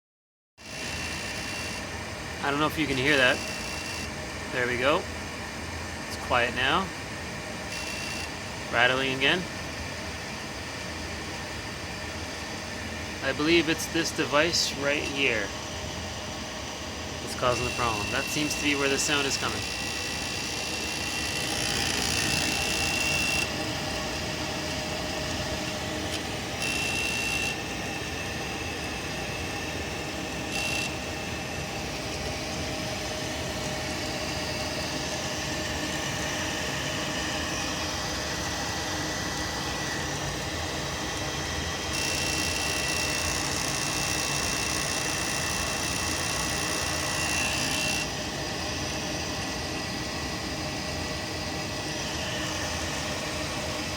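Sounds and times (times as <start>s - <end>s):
buzzing rattle: 0.6s - 2.0s, 2.9s - 4.2s, 7.6s - 8.4s, 17.3s - 36.9s, 41.8s - 48.2s
gas furnace running: 0.6s - 53.9s.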